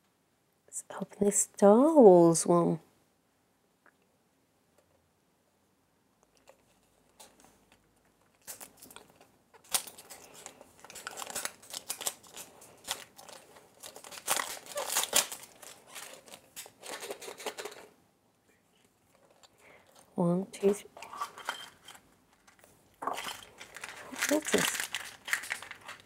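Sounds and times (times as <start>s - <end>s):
wrapper crinkling and tearing: 8.2s - 17.8s, 21.0s - 26.0s.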